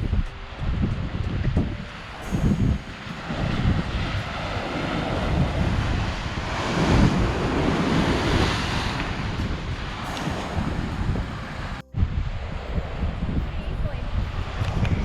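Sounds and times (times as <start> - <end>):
rushing water: 0.0 - 15.0
wind buffeting microphone: 0.0 - 15.0.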